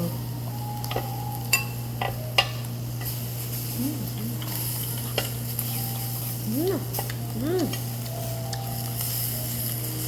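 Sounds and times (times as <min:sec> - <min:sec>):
beef sizzling on a grill: 0:00.0 - 0:10.0
constant low hum: 0:00.0 - 0:10.0.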